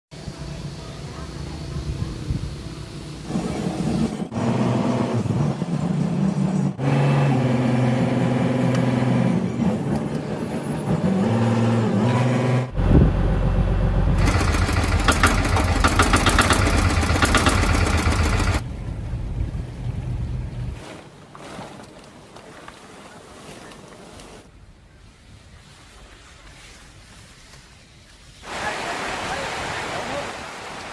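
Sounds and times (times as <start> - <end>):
deep engine sound: 0.2 - 20.8
engines running: 0.2 - 20.8
fast loud rattling clatter: 14.2 - 18.6.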